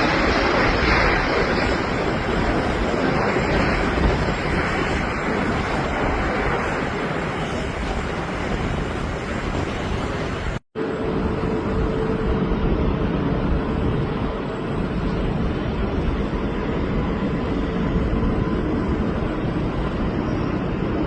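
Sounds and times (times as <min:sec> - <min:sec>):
jet engines roaring: 0:00.0 - 0:21.0
mid-pitched whine: 0:10.8 - 0:21.0.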